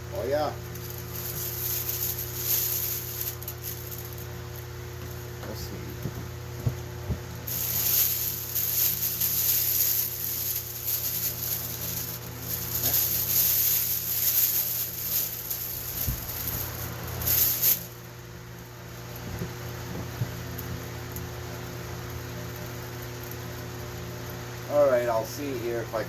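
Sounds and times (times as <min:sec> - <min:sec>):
steady low hum: 0:00.0 - 0:26.0
loud hissing spray: 0:07.5 - 0:17.9.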